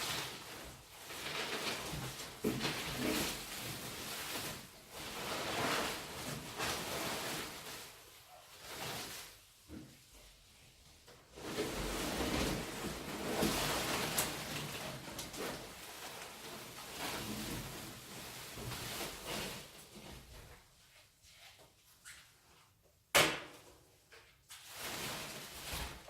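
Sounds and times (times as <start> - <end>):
packaging rustling and crinkling: 0.0 - 9.6, 11.4 - 20.3.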